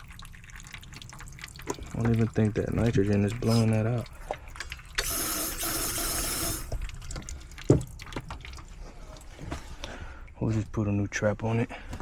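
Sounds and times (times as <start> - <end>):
water splashing in pipe: 0.0 - 10.4
compressed gas hissing through pipe: 5.0 - 6.7.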